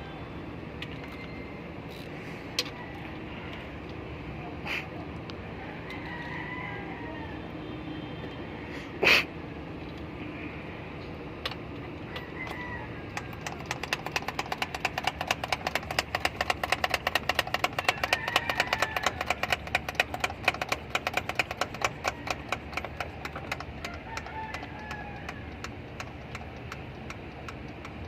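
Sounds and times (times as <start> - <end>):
mechanical hum: 0.0 - 28.0
rapid even clicking: 11.4 - 28.0.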